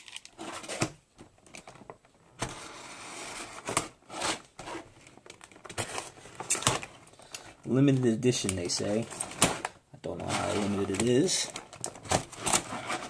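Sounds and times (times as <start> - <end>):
packaging clicks and crackles: 5.0 - 13.0
scraping rustle: 12.3 - 13.0.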